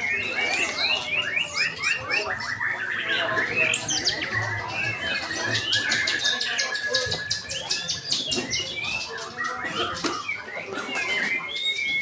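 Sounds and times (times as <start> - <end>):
birds singing: 0.0 - 12.0.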